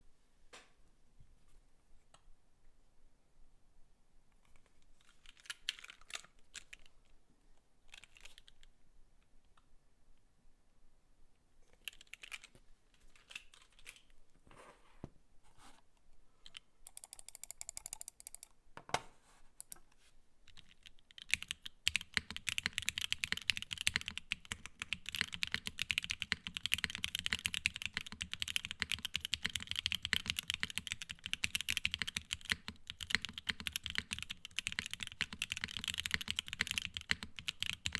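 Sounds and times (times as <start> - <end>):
typing on mechanical keyboard: 5.2 - 6.8, 11.8 - 12.6, 16.5 - 18.5, 20.5 - 37.9.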